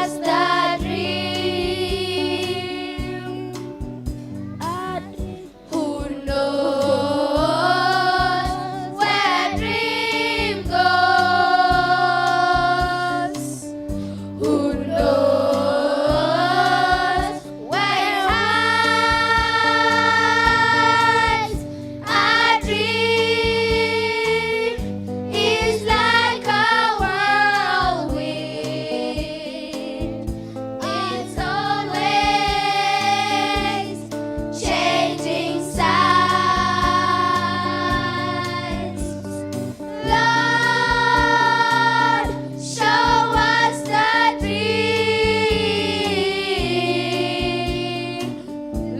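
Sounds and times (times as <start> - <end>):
group of voices singing: 0.0 - 3.7, 5.6 - 13.8, 14.4 - 48.5
instrumental accompaniment: 0.0 - 48.9.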